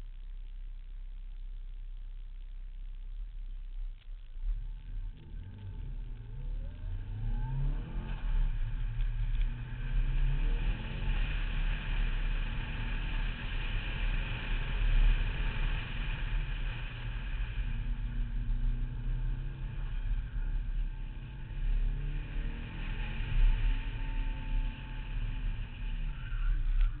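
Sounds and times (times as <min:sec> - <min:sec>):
car engine accelerating hard: 0:04.2 - 0:27.0.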